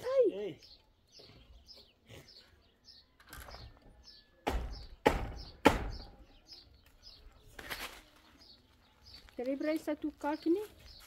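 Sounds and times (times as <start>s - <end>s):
sharp knocks: 4.4s - 6.2s.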